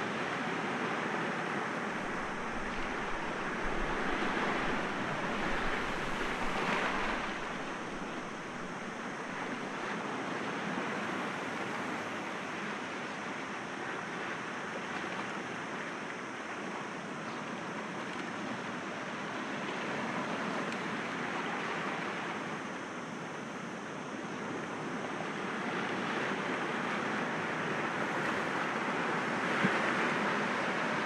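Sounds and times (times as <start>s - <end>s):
sea waves breaking on rocks: 1.9s - 9.6s.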